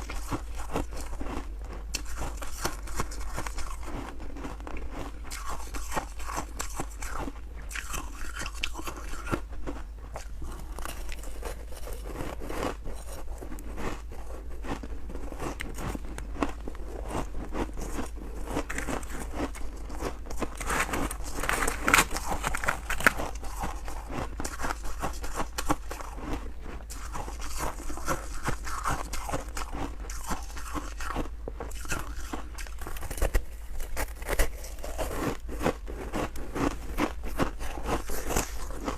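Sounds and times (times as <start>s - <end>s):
crunching frost being chewed: 0.0s - 38.9s
low steady hum: 0.0s - 38.9s.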